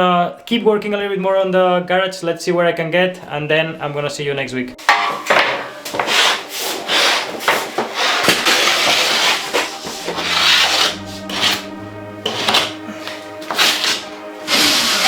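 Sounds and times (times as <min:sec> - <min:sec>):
music: 0:04.1 - 0:15.0
hand saw cutting wood: 0:05.2 - 0:15.0.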